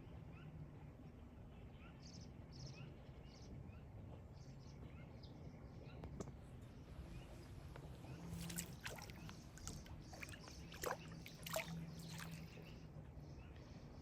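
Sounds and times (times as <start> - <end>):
low steady hum: 0.0 - 14.0
faint water lapping: 7.0 - 13.0
short sharp splashes: 8.2 - 12.6.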